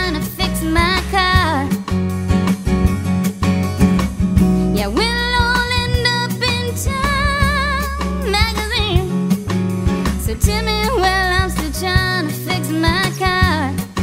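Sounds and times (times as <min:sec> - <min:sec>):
bass line: 0:00.0 - 0:14.0
strummed guitar: 0:00.0 - 0:14.0.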